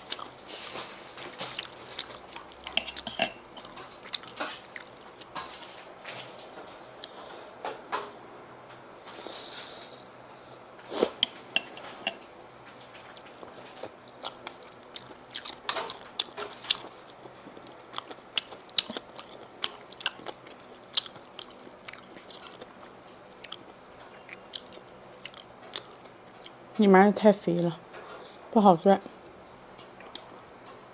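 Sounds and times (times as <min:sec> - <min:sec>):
wet chewing clicks and smacks: 0:13.1 - 0:26.6, 0:30.0 - 0:30.4.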